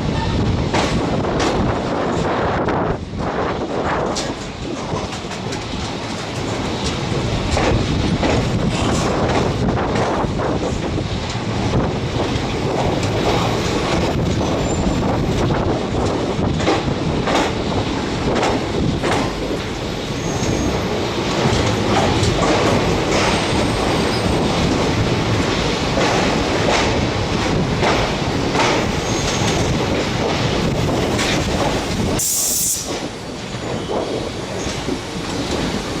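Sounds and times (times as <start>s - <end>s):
train rumbling on rails: 0.0s - 36.0s.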